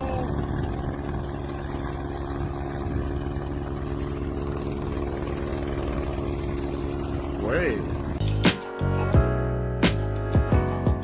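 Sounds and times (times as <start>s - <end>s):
steady hum tones: 0.0s - 8.2s
engine droning: 0.0s - 10.6s.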